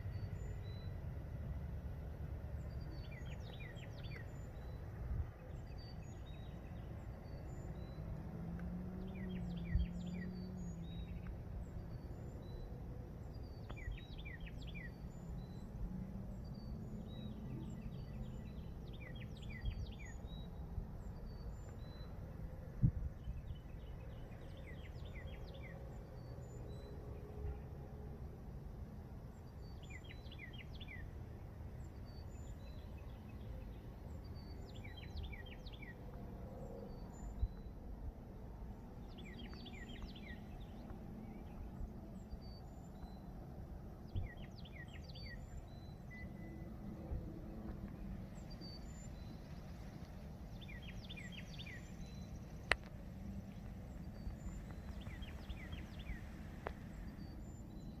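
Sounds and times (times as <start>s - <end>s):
songbird singing: 0.0s - 58.0s
low background rumble: 30.8s - 58.0s.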